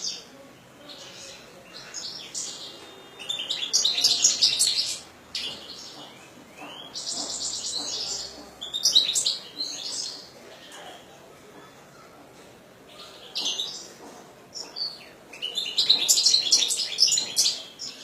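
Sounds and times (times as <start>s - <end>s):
finch singing: 0.9s - 10.3s, 14.6s - 18.0s.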